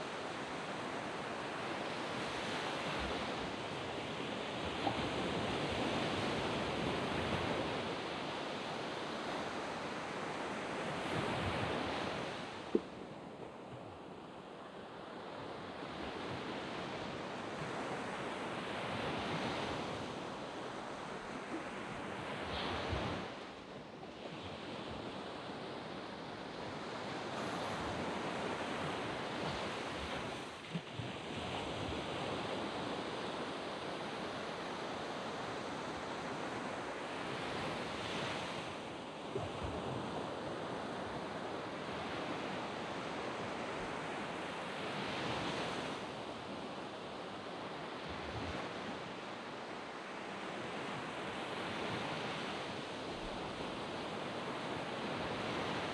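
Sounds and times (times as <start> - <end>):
waves breaking on sand beach: 0.0 - 55.9.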